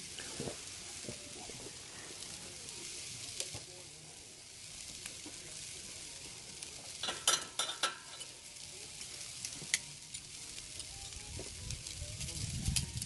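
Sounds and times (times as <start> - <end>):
chicken wings sizzling on grill: 0.0 - 13.0.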